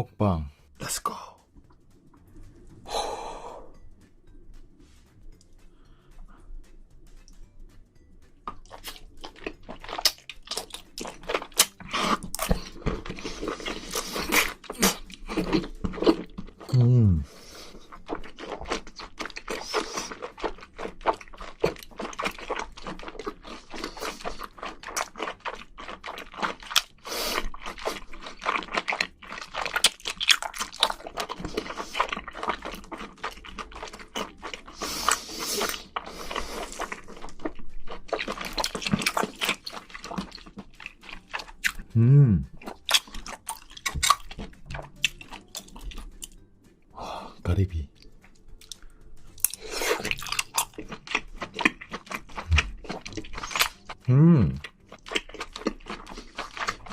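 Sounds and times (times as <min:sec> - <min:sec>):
wet chewing and slurping: 0:08.4 - 0:46.5, 0:47.3 - 0:56.9
person humming: 0:16.7 - 0:17.3, 0:41.9 - 0:42.5, 0:54.1 - 0:54.6.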